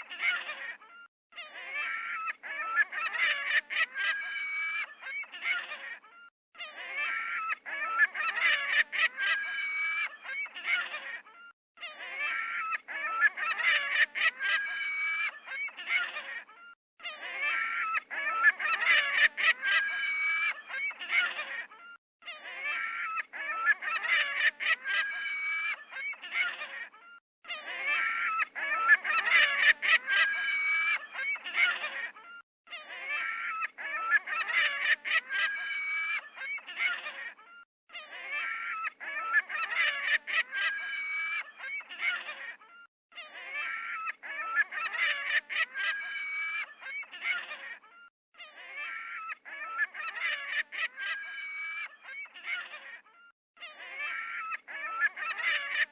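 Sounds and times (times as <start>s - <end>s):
geese honking: 6.7s - 11.2s, 12.0s - 16.3s, 17.2s - 21.6s, 27.6s - 32.0s.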